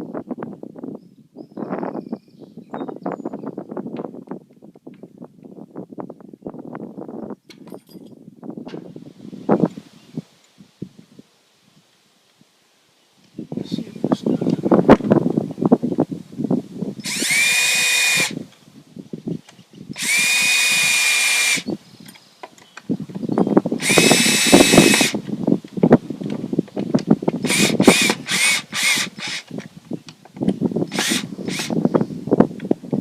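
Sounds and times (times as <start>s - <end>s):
cordless drill driving screws: 17.0s - 18.4s, 20.0s - 21.7s, 23.8s - 25.2s, 27.4s - 29.6s, 30.9s - 31.8s.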